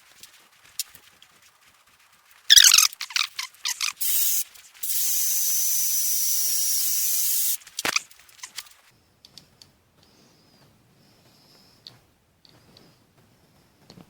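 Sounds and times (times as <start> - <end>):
pressurised spray hissing: 4.0 - 8.6.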